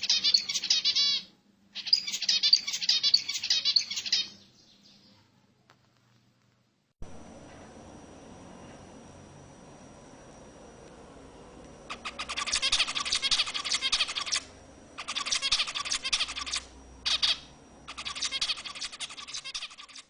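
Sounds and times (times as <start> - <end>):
small birds chirping: 0.0 - 5.9, 11.8 - 20.0.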